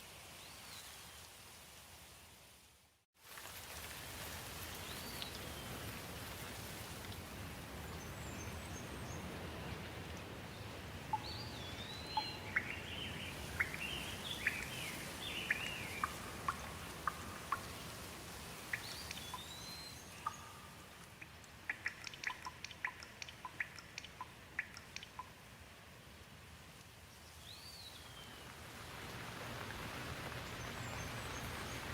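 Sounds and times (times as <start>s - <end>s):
steady rain: 0.0s - 31.9s
water drips ticking: 10.1s - 10.4s, 11.1s - 25.6s
bird chirping: 11.1s - 17.9s, 18.7s - 25.3s.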